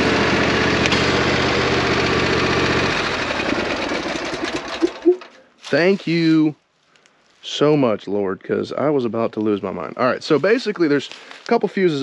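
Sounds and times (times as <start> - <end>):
engine running: 0.0 - 5.4
mechanical rattle winding down: 3.3 - 5.4.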